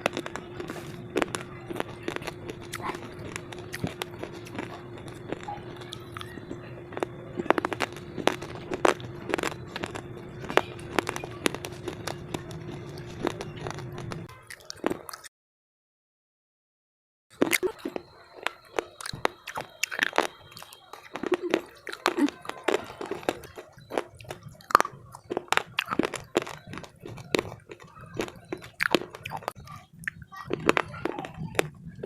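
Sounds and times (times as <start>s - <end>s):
faint steady hum: 0.0s - 14.4s
crunching of slate being chewed: 0.0s - 15.3s, 17.4s - 32.0s.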